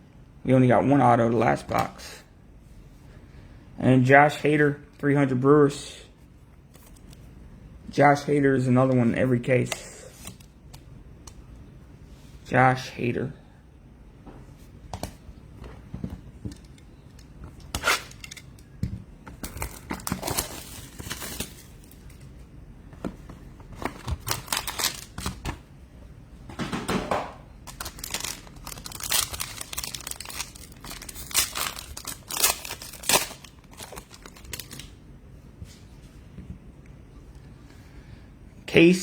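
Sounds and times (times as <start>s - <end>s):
plastic packaging crinkling and tearing: 19.4s - 22.2s, 23.8s - 25.4s, 27.6s - 35.0s.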